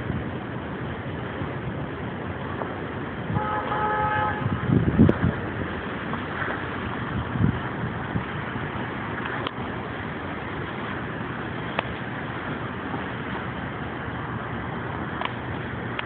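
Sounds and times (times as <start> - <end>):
street noise: 0.0 - 16.0
vehicle horn: 3.3 - 4.7.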